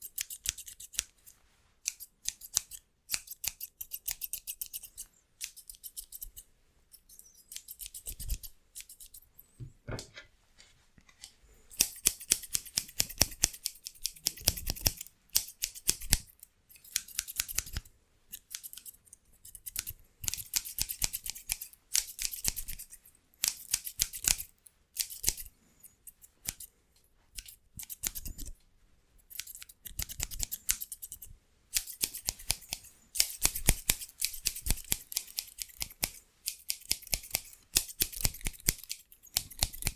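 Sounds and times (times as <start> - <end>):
scissors snipping fast: 11.8 - 25.5, 29.3 - 31.2, 31.8 - 39.9.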